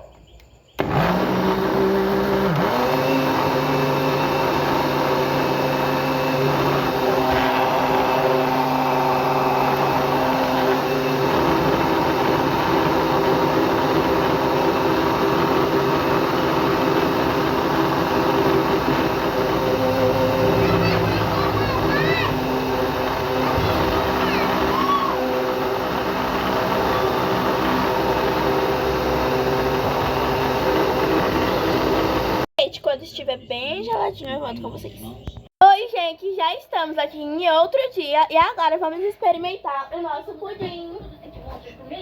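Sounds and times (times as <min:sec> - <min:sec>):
blender motor whine: 0:00.8 - 0:32.5.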